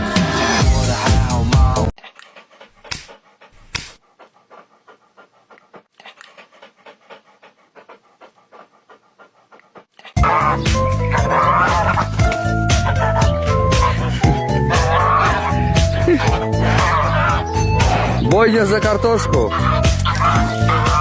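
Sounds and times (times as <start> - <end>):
dog panting: 2.0 - 21.0.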